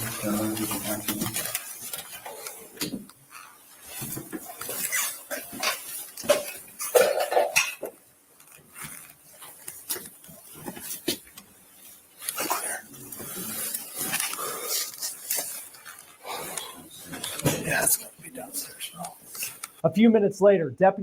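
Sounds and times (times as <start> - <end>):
rustling: 0.0 - 19.8.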